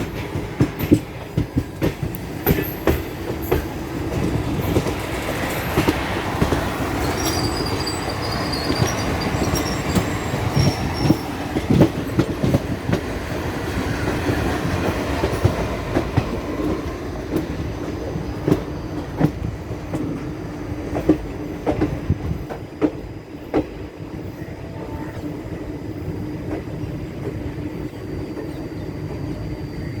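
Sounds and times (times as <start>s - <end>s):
train rumbling on track: 0.0s - 30.0s
high wheel squeals: 6.8s - 11.7s.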